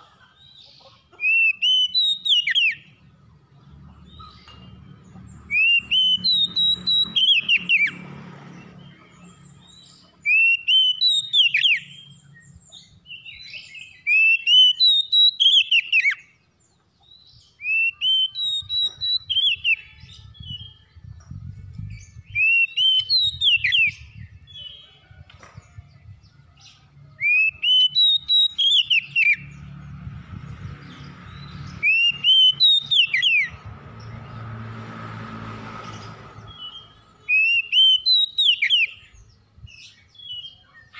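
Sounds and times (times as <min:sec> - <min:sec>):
bird singing whistled phrase: 0:17.6 - 0:19.9, 0:22.3 - 0:24.0.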